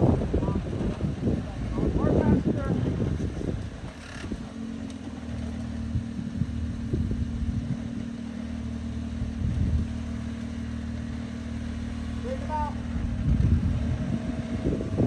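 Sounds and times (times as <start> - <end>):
car engine at low revs: 0.0 - 15.0.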